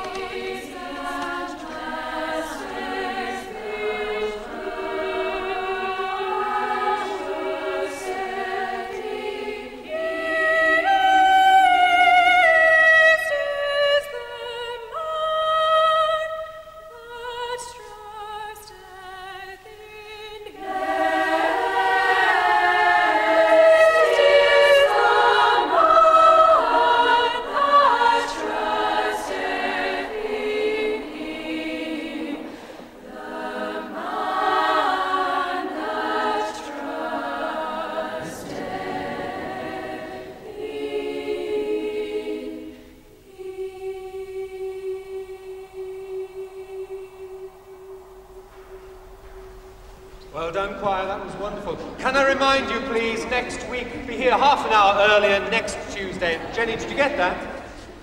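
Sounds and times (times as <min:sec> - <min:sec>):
girls' choir singing: 0:00.0 - 0:58.0.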